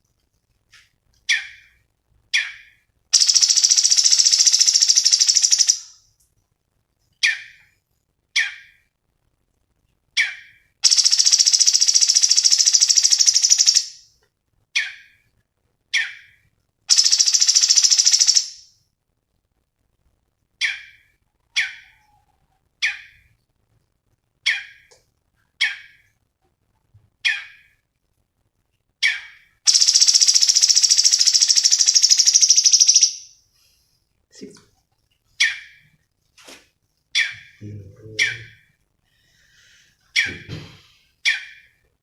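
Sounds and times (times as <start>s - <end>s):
bird calls: 2.4s - 5.9s, 29.0s - 33.3s, 37.2s - 38.7s
rapid high bird trills: 3.2s - 5.8s, 16.9s - 18.6s, 29.0s - 33.3s.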